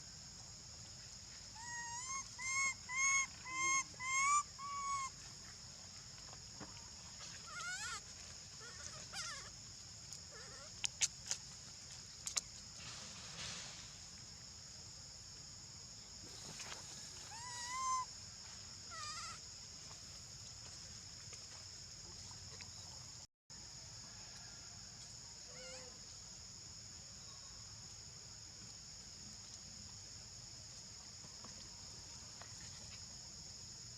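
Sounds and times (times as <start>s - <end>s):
monkeys calling: 1.6s - 5.1s, 17.3s - 18.0s.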